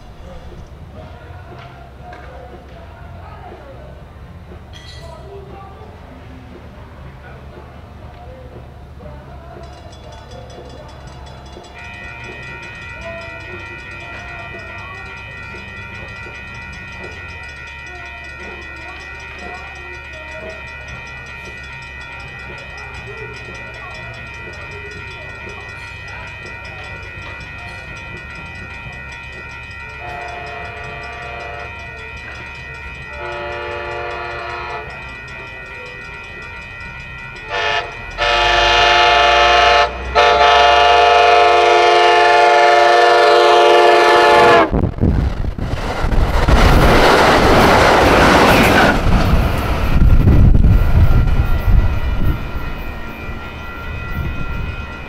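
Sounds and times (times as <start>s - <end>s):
train wheels rushing on rails: 0.0s - 55.0s
train air horn: 30.0s - 31.8s, 33.1s - 34.9s, 37.5s - 44.8s.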